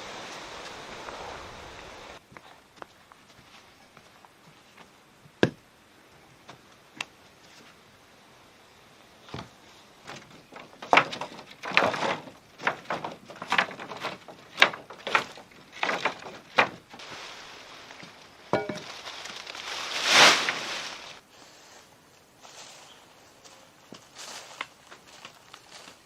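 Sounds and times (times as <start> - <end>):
wood knocking and clattering: 9.3 - 17.0
rustling swish: 16.9 - 21.2.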